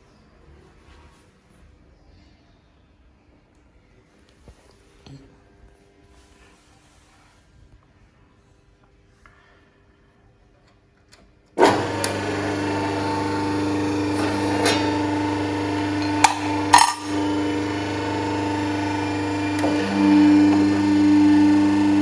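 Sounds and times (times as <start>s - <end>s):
electric motor and pump humming: 11.5s - 22.0s.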